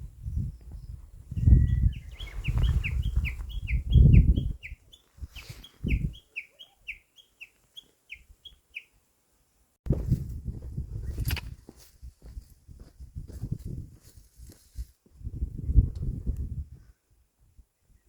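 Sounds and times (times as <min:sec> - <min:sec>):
bird chirping: 0:00.8 - 0:09.0.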